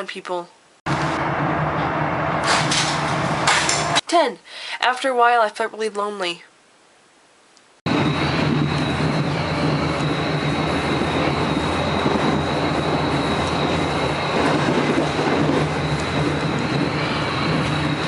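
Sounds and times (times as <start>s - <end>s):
moving train rumbling: 0.9s - 4.0s, 7.9s - 18.0s
thin high whine: 7.9s - 18.0s.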